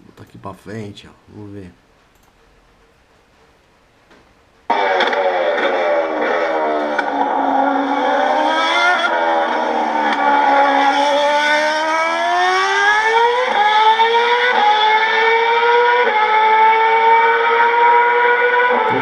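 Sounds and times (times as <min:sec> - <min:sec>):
racing engine accelerating: 0:04.7 - 0:19.0.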